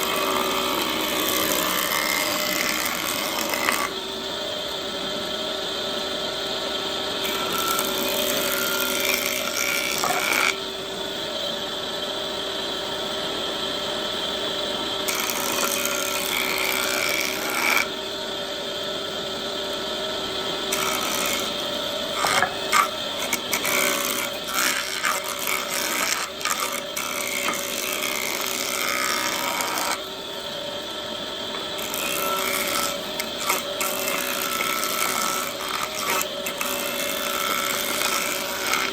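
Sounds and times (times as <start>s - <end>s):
high hiss of wood cutting: 0.0s - 4.6s, 14.9s - 38.9s
power tool whining: 0.0s - 11.7s, 14.8s - 38.9s.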